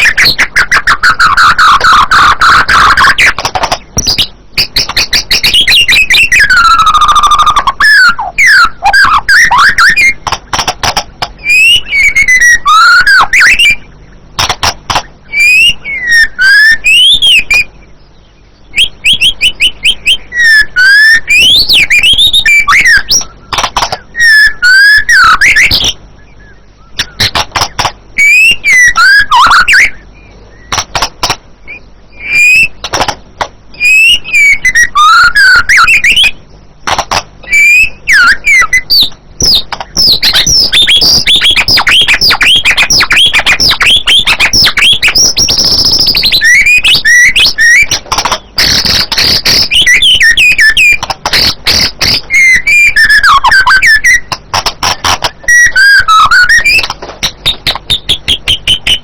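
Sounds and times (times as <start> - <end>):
bird singing whistled phrases: 0.0 - 10.3, 11.4 - 14.2, 15.2 - 30.8, 31.7 - 32.9, 33.7 - 36.4, 37.4 - 54.4, 55.3 - 59.0.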